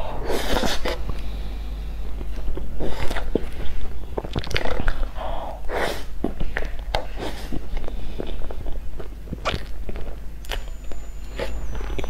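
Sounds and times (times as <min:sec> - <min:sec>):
wet chewing and lip smacks: 0:02.1 - 0:05.2, 0:06.1 - 0:12.0.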